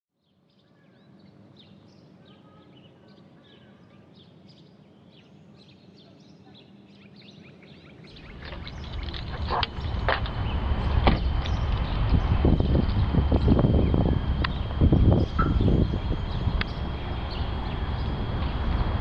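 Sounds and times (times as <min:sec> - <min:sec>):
small birds chirping: 0:00.2 - 0:19.0
low rumble: 0:08.1 - 0:19.0.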